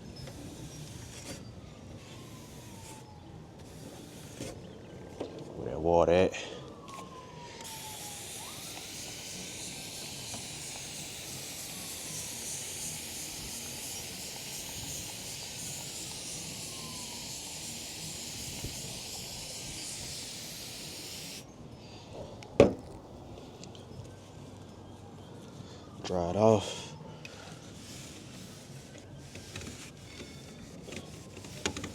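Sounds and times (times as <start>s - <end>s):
water spraying onto headlight: 7.7s - 21.4s.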